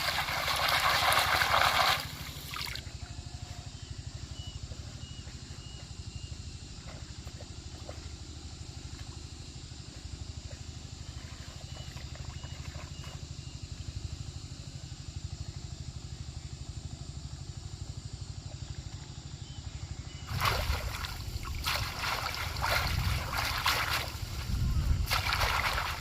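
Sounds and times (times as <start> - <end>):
water splashing and sloshing: 0.0 - 3.0, 6.9 - 9.2, 11.0 - 13.3, 20.3 - 26.0
small engine running: 0.0 - 26.0.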